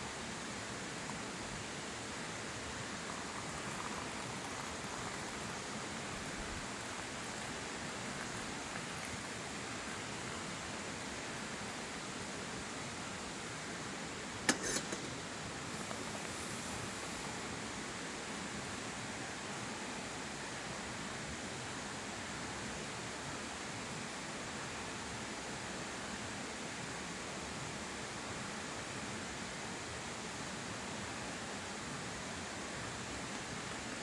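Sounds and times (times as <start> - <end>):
steady hiss: 0.0 - 20.3.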